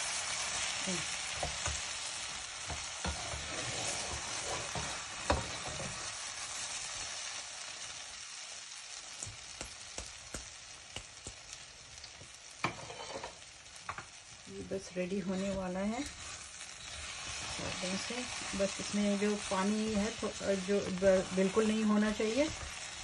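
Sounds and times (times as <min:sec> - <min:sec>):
food sizzling in a wok: 0:00.0 - 0:23.0
wooden spoon scraping and knocking pan: 0:02.6 - 0:06.1, 0:12.6 - 0:14.1, 0:15.2 - 0:23.0.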